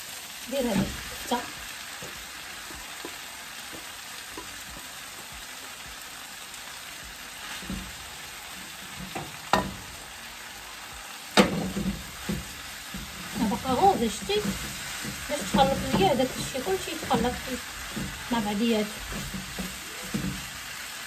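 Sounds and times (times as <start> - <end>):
meat and onions sizzling in a pan: 0.0 - 21.0
sharp knocks against a pan: 9.0 - 9.9, 11.4 - 13.4, 19.0 - 20.5
stirring: 11.7 - 20.7.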